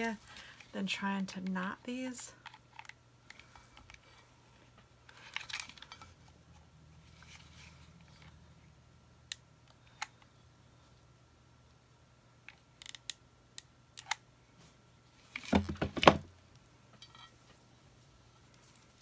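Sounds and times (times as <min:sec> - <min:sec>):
clatter and thump: 0:15.4 - 0:16.3.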